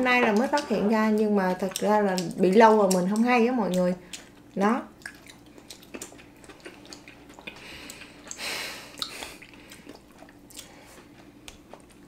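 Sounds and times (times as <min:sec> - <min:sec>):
people chewing: 0:00.2 - 0:12.0
wet mouth clicks and smacks: 0:01.7 - 0:10.8.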